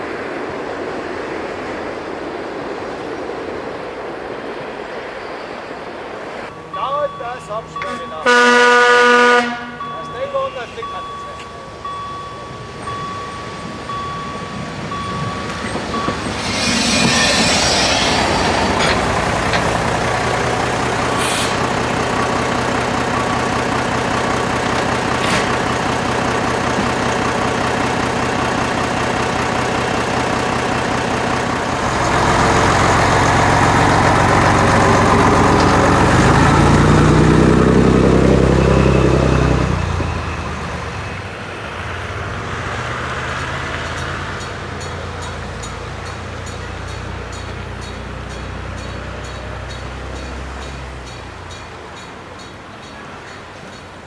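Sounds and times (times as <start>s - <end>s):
train rumbling by: 0.0s - 54.0s
burst of hiss: 16.2s - 22.0s.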